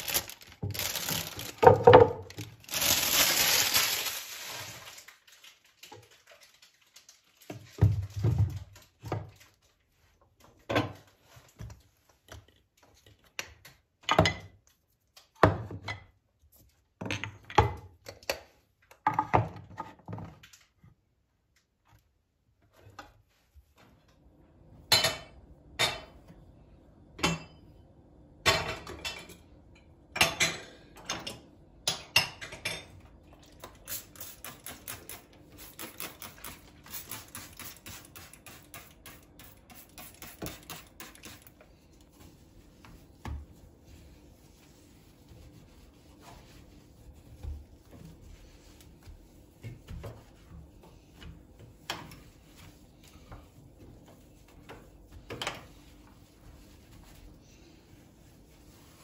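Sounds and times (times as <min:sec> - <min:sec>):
kitchenware clinking and clattering: 0:00.0 - 0:06.7, 0:24.9 - 0:26.2, 0:28.4 - 0:33.6.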